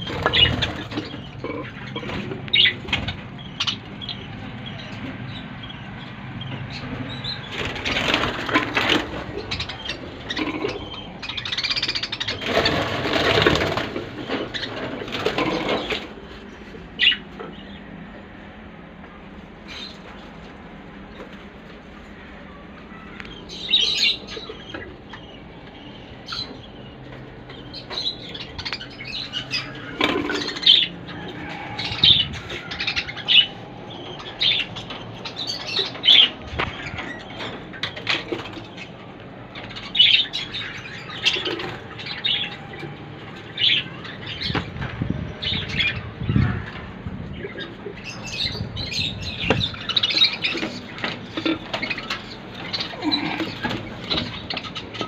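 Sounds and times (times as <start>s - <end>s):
budgerigars chirping: 0.0s - 16.1s, 23.5s - 39.0s, 39.6s - 44.7s, 47.4s - 55.0s
wings flapping: 7.5s - 9.4s, 12.2s - 16.1s.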